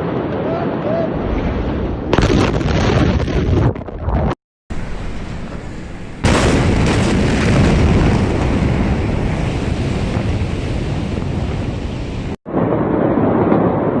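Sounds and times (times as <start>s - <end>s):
explosion boom: 1.2s - 14.0s
wind buffeting microphone: 4.8s - 14.0s.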